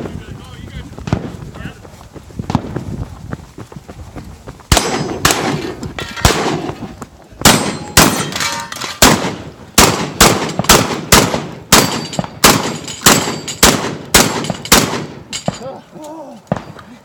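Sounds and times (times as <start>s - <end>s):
shotgun shots: 4.7s - 15.6s
steel targets clanging: 7.6s - 9.0s.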